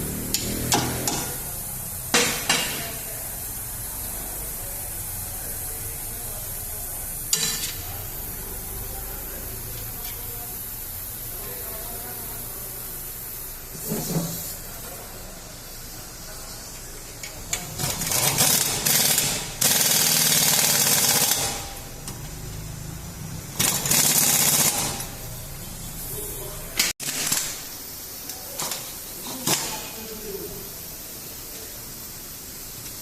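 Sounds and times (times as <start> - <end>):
impact wrench hammering: 0.3 - 1.4, 2.1 - 3.1, 7.3 - 7.8, 17.5 - 21.8, 23.6 - 25.2.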